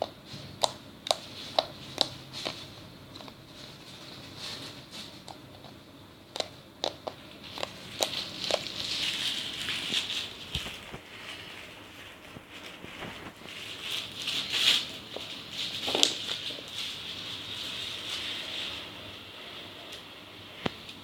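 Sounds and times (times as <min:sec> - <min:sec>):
slime squishing and crackling: 0:05.2 - 0:18.5.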